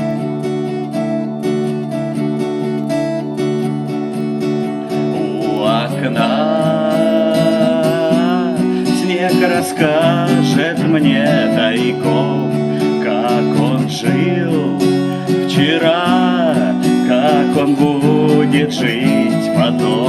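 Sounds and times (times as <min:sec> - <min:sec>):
acoustic guitar strumming: 0:00.0 - 0:20.0
person singing: 0:04.7 - 0:20.0.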